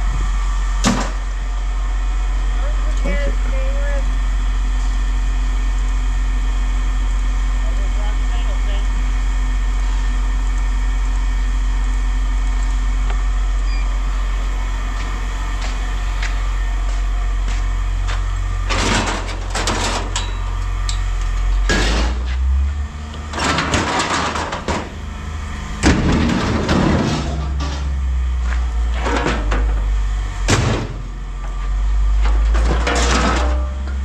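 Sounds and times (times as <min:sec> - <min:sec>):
vehicle engine idling: 0:00.0 - 0:34.0
scrap metal clattering: 0:23.3 - 0:24.9, 0:25.8 - 0:28.0, 0:32.2 - 0:34.0.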